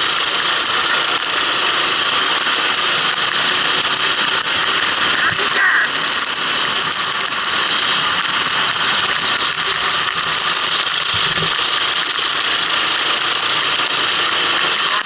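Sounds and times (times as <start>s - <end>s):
wind and water spray rushing: 0.1s - 15.0s.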